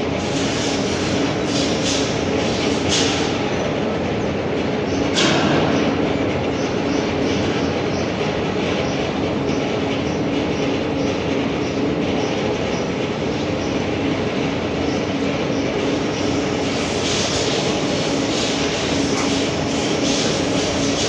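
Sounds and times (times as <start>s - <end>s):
machine humming: 15.8s - 21.0s.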